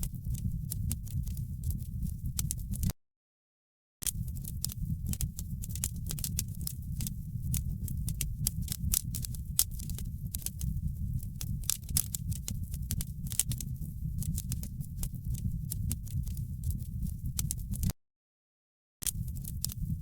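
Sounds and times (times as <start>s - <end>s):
wood fire crackling: 4.1s - 17.9s, 19.1s - 20.0s.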